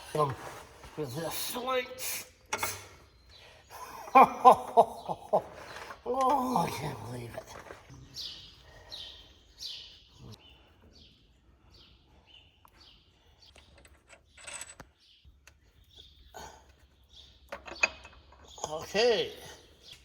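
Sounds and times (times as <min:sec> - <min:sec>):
bird chirping: 0:01.0 - 0:20.0
metallic clinks and knocks: 0:13.5 - 0:15.0, 0:17.5 - 0:18.6.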